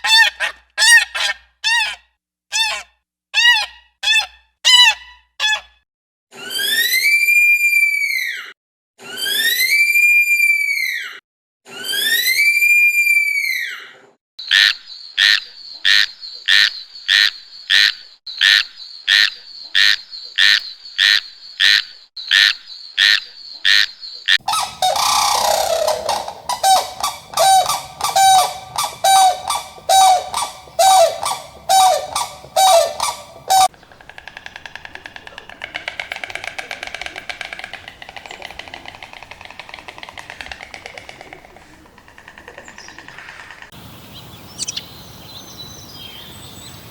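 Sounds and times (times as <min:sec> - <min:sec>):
faint chattering calls: 0:23.0 - 0:45.6
honking animal calls: 0:24.4 - 0:33.7.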